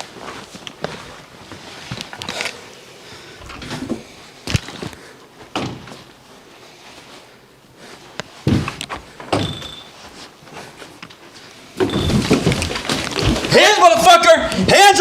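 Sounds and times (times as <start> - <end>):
doors opening and knocking: 5.5 - 6.0, 8.5 - 9.9, 11.8 - 13.6.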